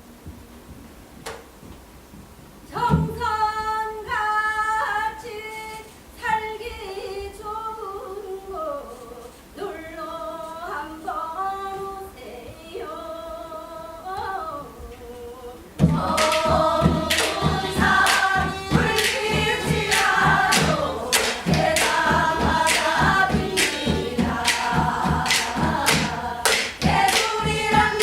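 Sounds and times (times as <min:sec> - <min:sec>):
woman singing folk song: 0:02.7 - 0:28.0
low thump: 0:15.8 - 0:28.0.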